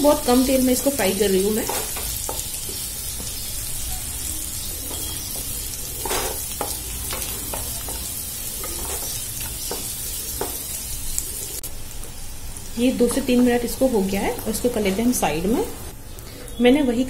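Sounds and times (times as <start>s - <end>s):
oil sizzling: 0.0s - 16.1s
wooden spatula scraping a pan: 0.8s - 2.8s, 4.9s - 10.7s.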